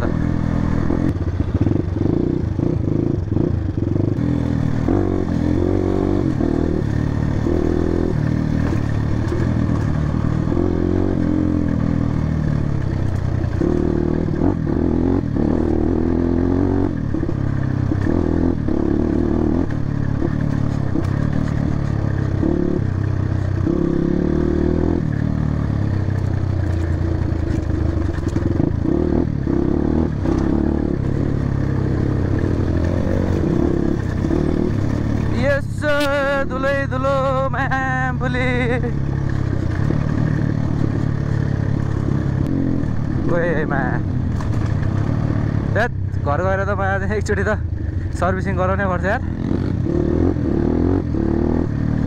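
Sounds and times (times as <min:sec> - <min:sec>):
motorcycle engine revving: 0:00.0 - 0:52.0
bike rattling over bumps: 0:06.2 - 0:15.8, 0:16.9 - 0:24.0, 0:25.0 - 0:46.7.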